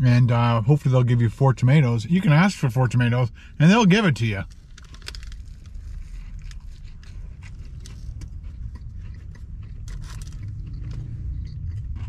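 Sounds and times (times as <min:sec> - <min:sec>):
low steady hum: 0:00.0 - 0:12.0
person chewing sandwich: 0:04.5 - 0:12.0.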